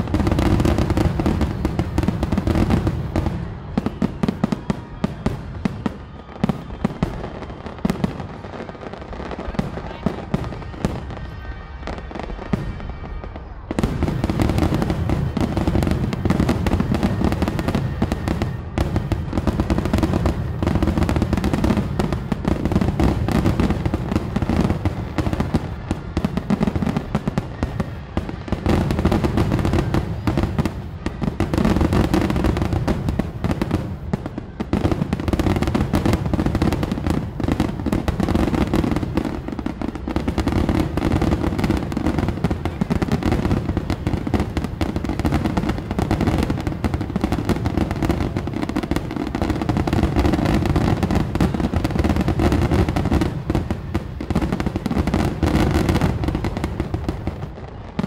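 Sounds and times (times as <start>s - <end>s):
fireworks booming: 0.0s - 58.0s.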